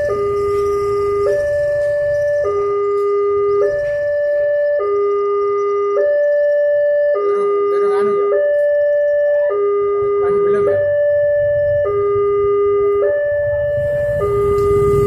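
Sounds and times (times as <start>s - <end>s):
two-tone level crossing alarm: 0.0s - 15.0s
low rumble: 10.8s - 15.0s.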